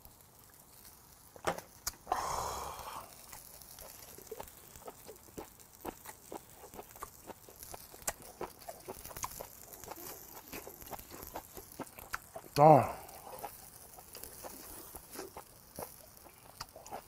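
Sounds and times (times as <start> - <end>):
breathy puff: 2.1 - 3.1
person chewing with wet smacking: 3.1 - 17.0.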